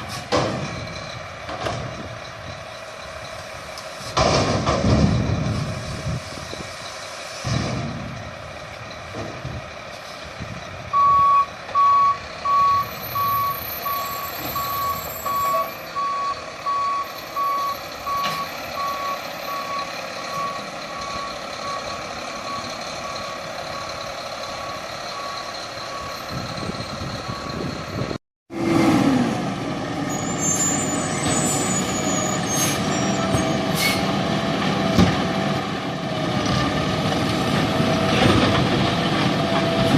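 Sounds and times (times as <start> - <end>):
reversing alarm beeps: 10.9 - 23.9, 24.6 - 28.0.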